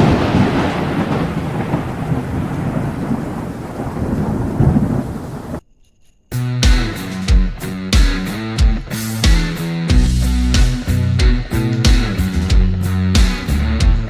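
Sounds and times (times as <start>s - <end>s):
rain: 0.0s - 5.6s
thunderclap and rolling thunder: 0.0s - 5.6s
music: 6.3s - 14.0s.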